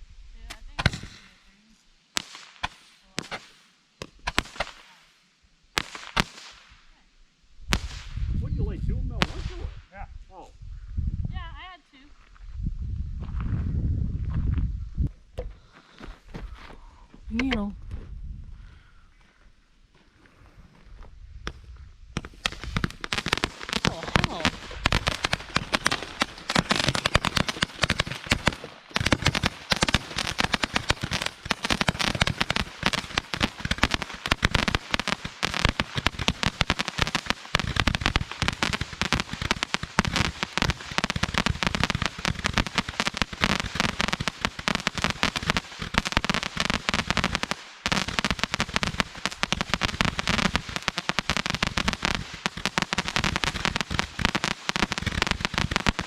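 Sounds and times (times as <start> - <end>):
fireworks cracking and popping: 0.4 - 6.9, 7.7 - 8.4, 9.1 - 10.4, 21.4 - 56.0.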